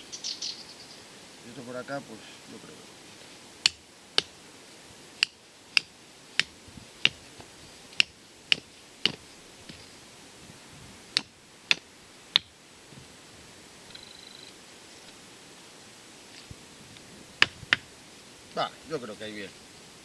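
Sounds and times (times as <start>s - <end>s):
tent pegs hammered into ground: 3.6s - 4.4s, 5.2s - 9.9s, 11.1s - 12.5s.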